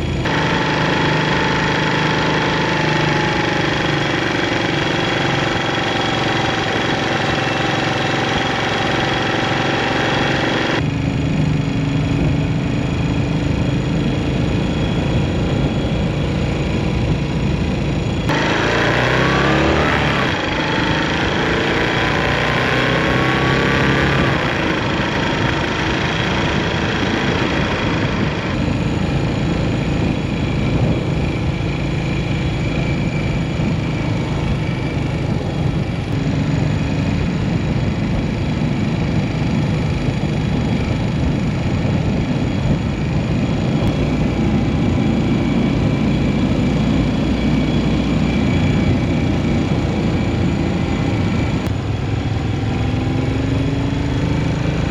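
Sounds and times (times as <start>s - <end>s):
motorcycle engine running: 0.0s - 54.9s
rushing noise: 12.1s - 38.3s.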